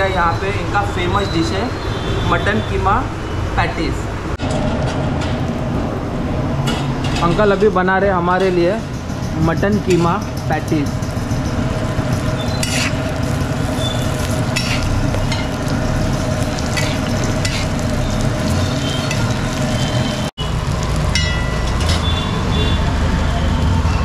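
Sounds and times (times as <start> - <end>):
patties sizzling in oil: 10.7 - 22.8
metal spatula scraping griddle: 10.9 - 15.5, 16.6 - 17.9.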